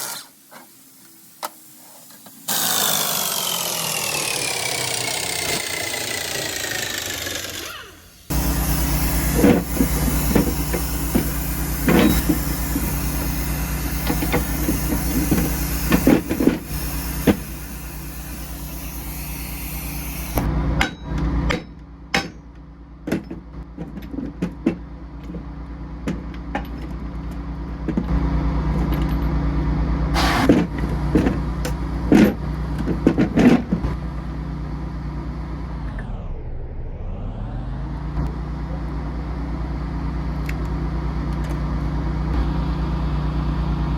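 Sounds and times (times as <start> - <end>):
high hiss: 0.0 - 3.3, 7.9 - 20.5
engine running: 0.0 - 43.9.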